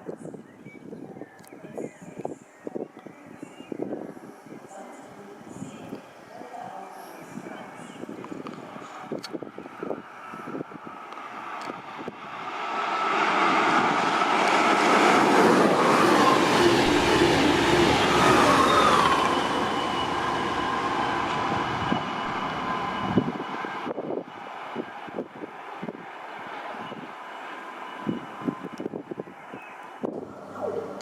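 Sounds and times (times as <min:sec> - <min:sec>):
high whine of train: 0:00.0 - 0:31.0
train passing at speed: 0:07.2 - 0:31.0.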